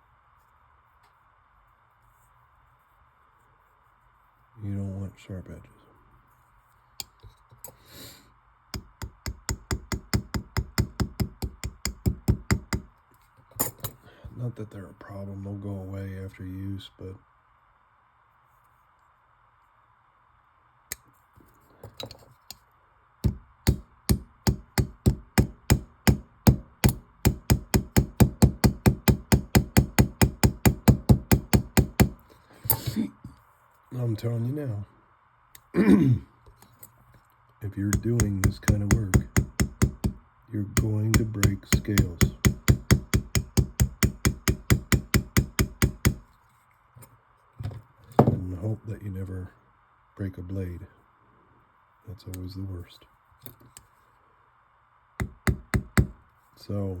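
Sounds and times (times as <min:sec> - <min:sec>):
small hammer tapping: 0:08.8 - 0:12.9, 0:23.2 - 0:32.8, 0:37.9 - 0:40.2, 0:40.8 - 0:46.2, 0:55.2 - 0:56.2.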